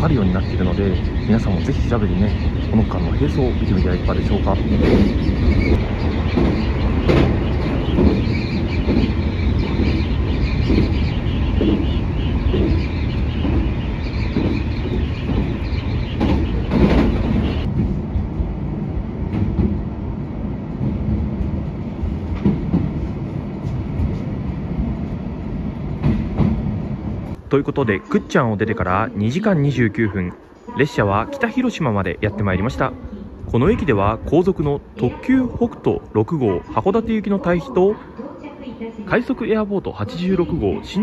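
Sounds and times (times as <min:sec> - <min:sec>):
train running rumble: 0:00.0 - 0:29.4
wheels clicking over rail joints: 0:00.4 - 0:17.8.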